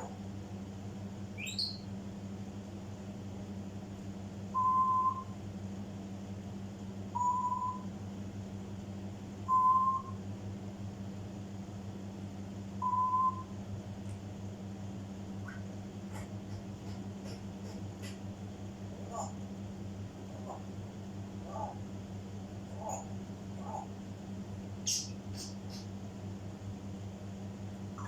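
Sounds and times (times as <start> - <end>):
steady low hum: 0.0 - 28.0
parrot whistling: 1.4 - 1.8.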